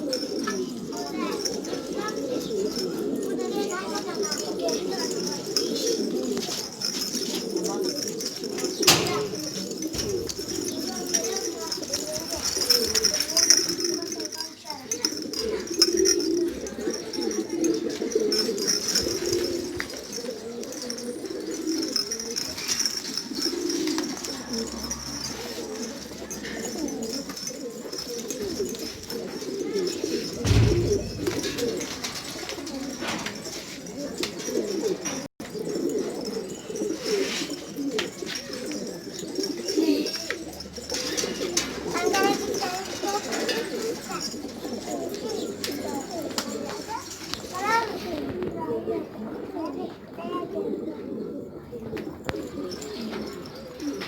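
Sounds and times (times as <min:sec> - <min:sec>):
pigeons cooing: 0:00.0 - 0:54.0
dull thump: 0:30.4 - 0:32.3.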